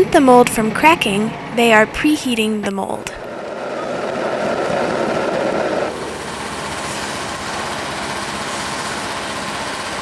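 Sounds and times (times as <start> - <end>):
torch burning with rushing: 3.2 - 9.5.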